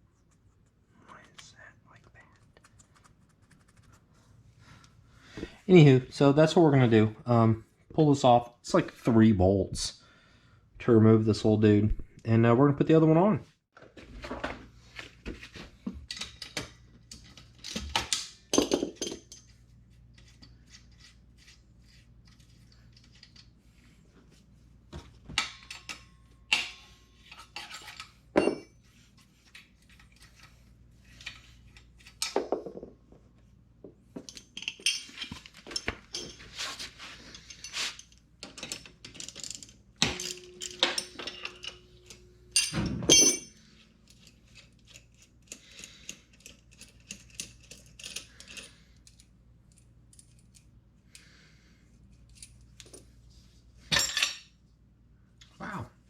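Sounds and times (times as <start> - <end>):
tools and metal parts clinking: 16.0 - 19.6, 25.4 - 28.9, 34.2 - 50.8, 53.9 - 54.6.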